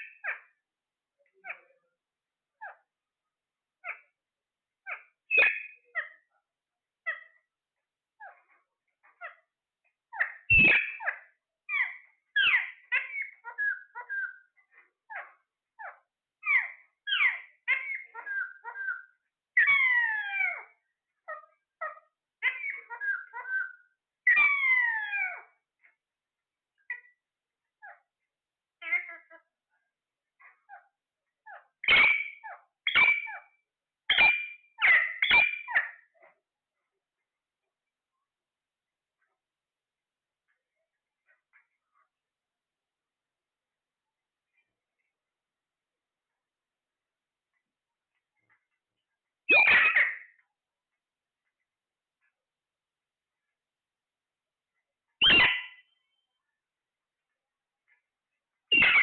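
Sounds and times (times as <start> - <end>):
parrot squawking and chirping: 0.0 - 0.6, 2.6 - 2.9, 3.8 - 4.1, 4.8 - 6.3, 7.0 - 7.4, 8.2 - 9.5, 10.1 - 25.9, 26.8 - 27.2, 27.8 - 28.1, 28.8 - 29.5, 30.4 - 36.3, 49.5 - 50.4, 55.2 - 56.2, 58.7 - 59.0.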